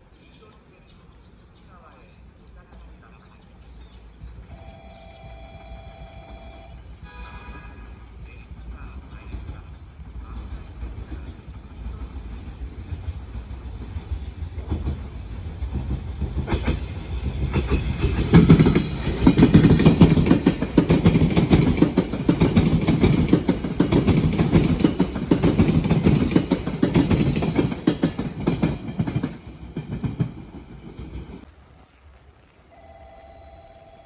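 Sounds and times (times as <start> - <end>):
train heavy rumble: 4.5 - 31.5
train wheels clattering: 8.9 - 31.5.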